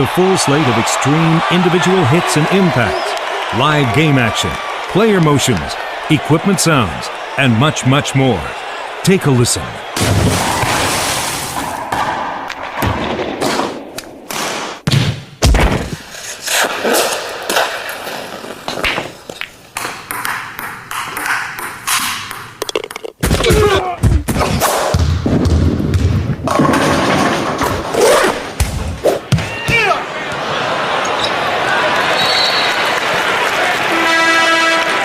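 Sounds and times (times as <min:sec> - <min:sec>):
live game action: 0:09.8 - 0:16.0.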